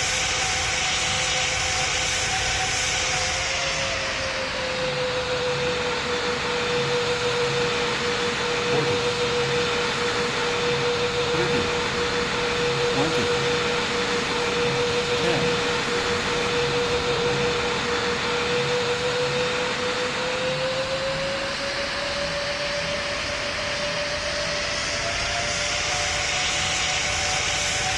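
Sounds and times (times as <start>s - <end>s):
jet engine cabin noise: 0.0s - 27.9s.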